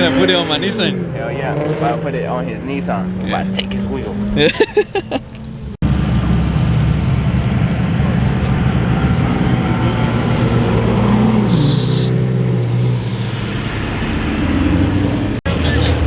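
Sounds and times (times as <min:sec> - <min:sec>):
car engine idling: 0:03.2 - 0:15.4.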